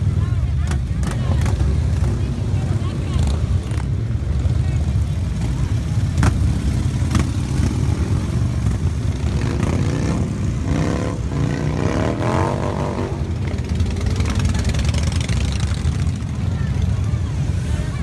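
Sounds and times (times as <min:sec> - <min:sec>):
motorcycle engines rumbling: 0:00.0 - 0:18.0.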